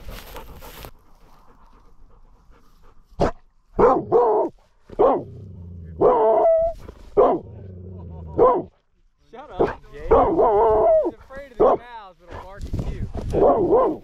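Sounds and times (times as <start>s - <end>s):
rustle: 0.0s - 3.8s, 6.6s - 10.1s
dog barking: 3.2s - 5.3s, 6.0s - 7.5s, 8.4s - 8.7s, 9.6s - 11.8s, 13.3s - 14.0s.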